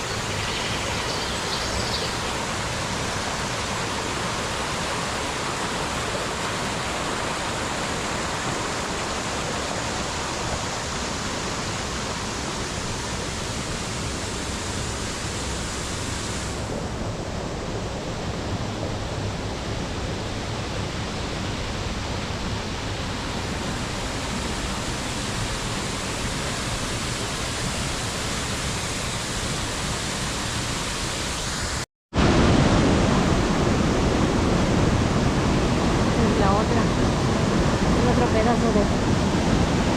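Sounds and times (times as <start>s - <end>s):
waterfall rushing: 0.0s - 16.8s.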